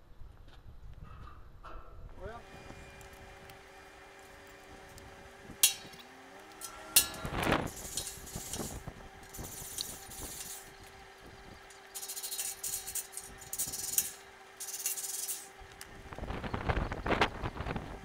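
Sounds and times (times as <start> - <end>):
faint hum: 1.1 - 18.0
rough scraping strokes: 6.6 - 10.9, 11.7 - 15.6.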